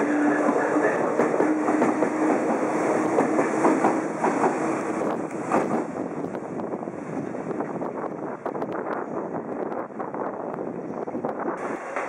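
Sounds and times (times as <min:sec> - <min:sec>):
train motor hum: 0:00.0 - 0:06.7.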